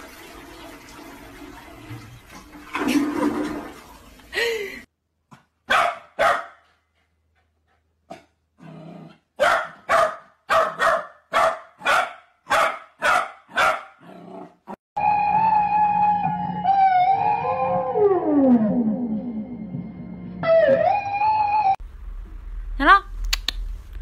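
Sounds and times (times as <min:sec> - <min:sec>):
dog barking: 0:05.6 - 0:06.8, 0:09.4 - 0:14.0.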